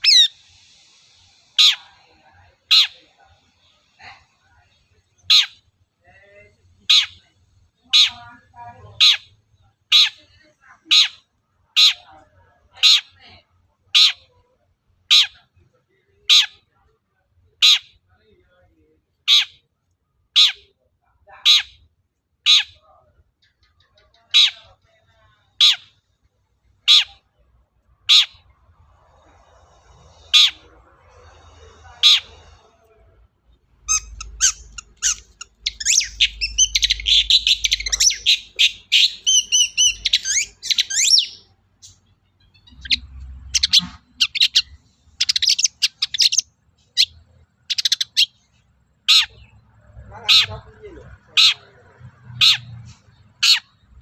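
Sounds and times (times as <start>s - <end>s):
bird chattering song: 0.0s - 0.4s, 1.6s - 2.0s, 5.2s - 5.6s, 6.8s - 7.2s, 7.9s - 8.3s, 8.9s - 10.3s, 17.6s - 18.0s, 25.6s - 26.0s, 33.8s - 54.0s
shrike calling with harsh notes: 0.0s - 3.8s, 5.2s - 5.7s, 6.8s - 10.3s, 20.3s - 20.7s, 26.8s - 27.3s, 28.0s - 32.7s, 33.8s - 46.4s, 49.0s - 54.0s.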